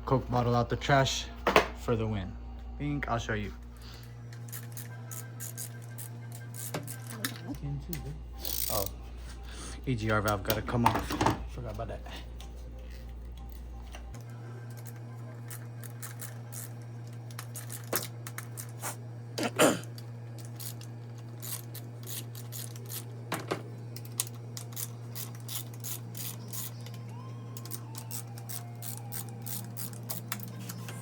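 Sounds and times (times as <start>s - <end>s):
socket ratchet clicking: 27.6s - 30.8s.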